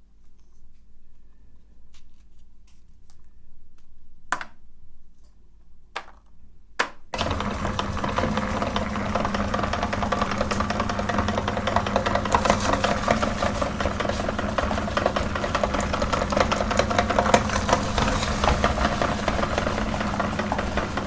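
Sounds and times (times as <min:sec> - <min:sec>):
electric meat grinder grinding: 0:07.2 - 0:21.0.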